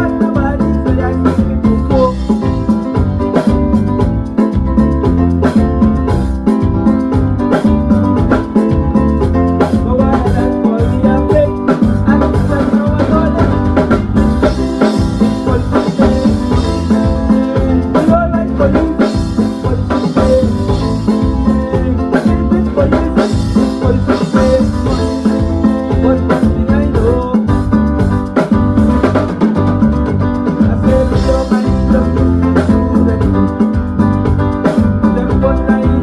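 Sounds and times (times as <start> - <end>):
person singing: 0.0 - 3.5, 8.4 - 28.0, 30.4 - 33.9, 34.6 - 36.0
drum kit beat: 0.0 - 36.0
guitar: 0.0 - 36.0.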